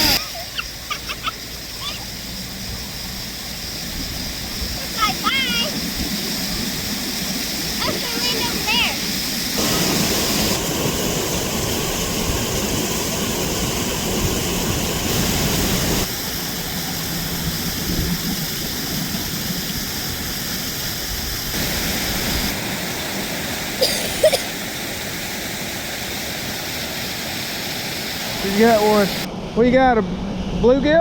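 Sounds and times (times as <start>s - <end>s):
river rushing: 0.0s - 30.4s.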